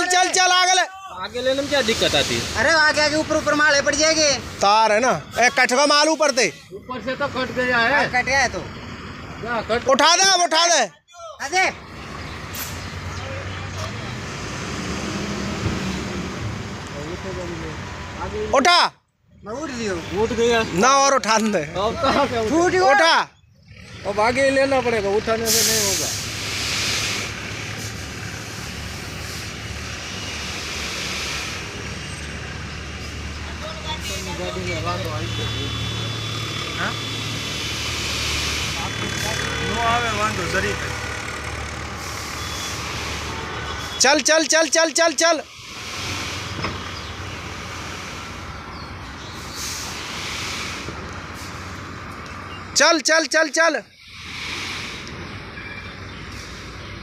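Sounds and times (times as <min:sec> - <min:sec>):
hissing rush: 0:00.3 - 0:07.6, 0:25.0 - 0:52.1, 0:52.8 - 0:55.6, 0:56.2 - 0:57.0
truck diesel engine running: 0:06.8 - 0:10.0, 0:23.5 - 0:44.0.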